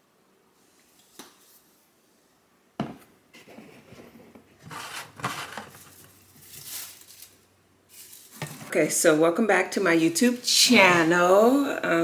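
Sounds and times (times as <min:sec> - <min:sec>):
objects rustling and rubbing: 0:03.3 - 0:08.9.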